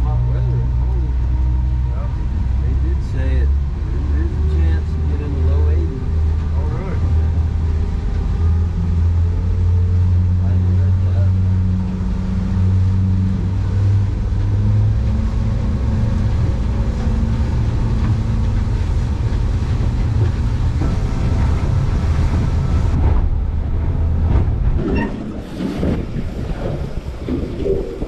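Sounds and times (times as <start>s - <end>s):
boat engine humming: 0.0s - 28.0s.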